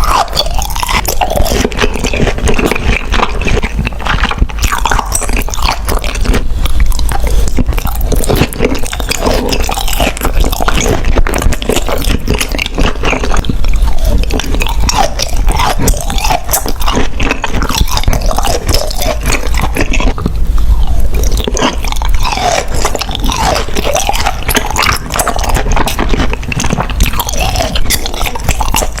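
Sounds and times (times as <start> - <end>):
person chewing food: 0.0 - 29.0.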